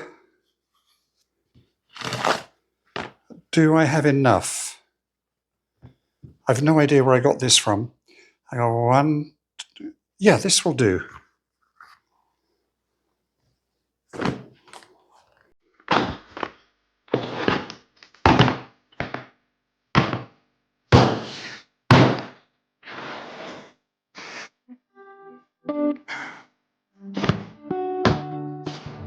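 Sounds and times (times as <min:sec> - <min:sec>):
music notes: 0:24.7 - 0:26.4, 0:27.0 - 0:29.0.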